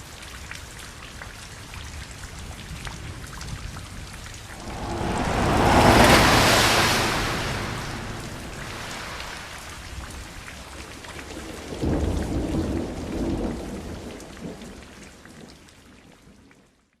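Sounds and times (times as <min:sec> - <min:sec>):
thunder rumbling: 0:04.5 - 0:10.1
steady rain falling: 0:04.5 - 0:10.2.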